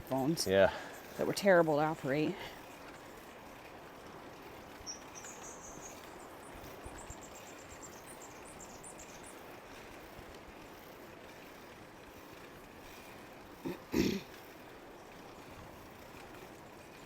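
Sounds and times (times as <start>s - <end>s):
faint outdoor noise: 0.0s - 17.0s
small bird chirping: 4.7s - 9.5s.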